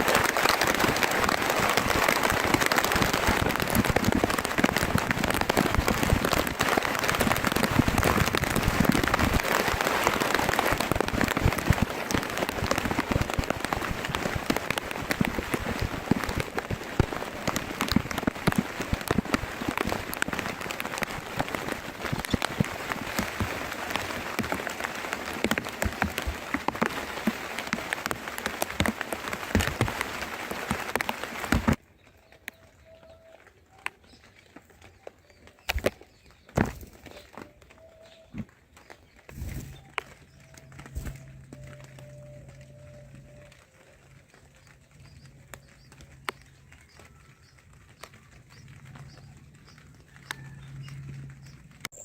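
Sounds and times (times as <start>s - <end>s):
heavy rain pattering: 0.0s - 52.0s.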